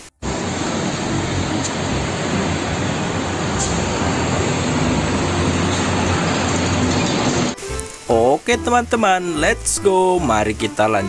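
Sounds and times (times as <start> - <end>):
trucks driving past: 0.0 - 7.8
motorbikes driving past: 0.2 - 7.6.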